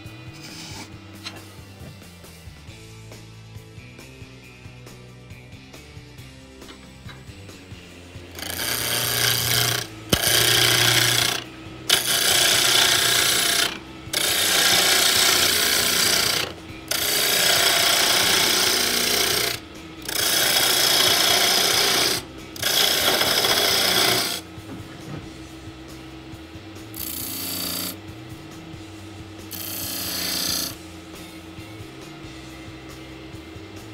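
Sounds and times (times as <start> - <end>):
tool scraping wood on lathe: 0.3 - 1.4, 8.4 - 25.3, 27.0 - 28.0, 29.5 - 30.8.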